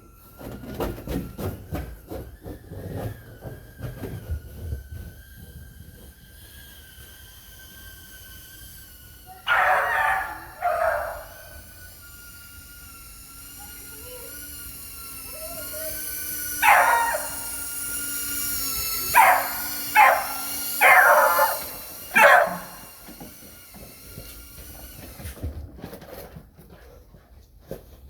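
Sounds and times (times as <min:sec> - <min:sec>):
quadcopter motors whining: 0:00.0 - 0:25.9
dog barking: 0:09.4 - 0:11.6, 0:16.6 - 0:17.6, 0:19.1 - 0:22.9.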